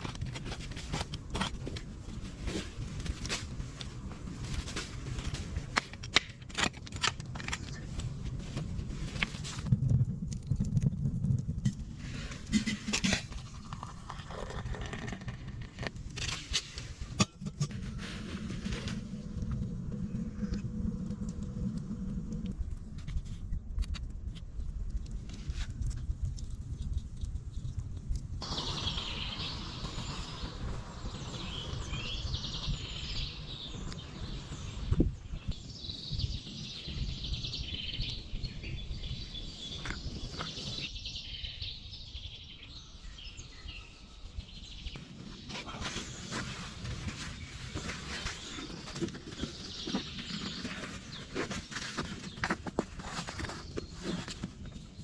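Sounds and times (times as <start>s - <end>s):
low rumble: 17.4s - 35.8s
birds chirping: 28.4s - 55.0s.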